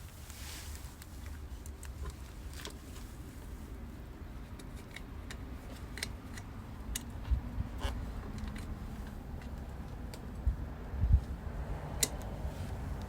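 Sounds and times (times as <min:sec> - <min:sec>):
light clicks and taps: 0:04.4 - 0:10.6, 0:12.0 - 0:13.0.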